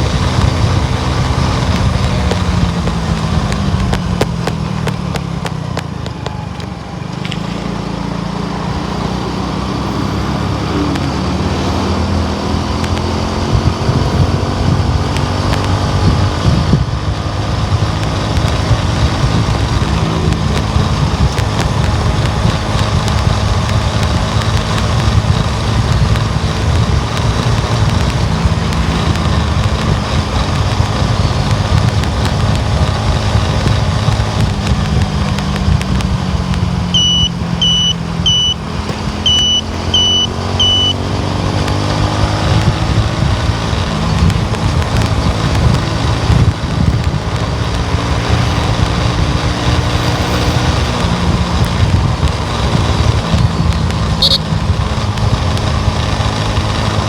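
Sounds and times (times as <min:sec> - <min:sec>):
wind buffeting microphone: 0:00.0 - 0:07.0, 0:08.7 - 0:57.0
tyre and engine rumble: 0:00.0 - 0:57.0.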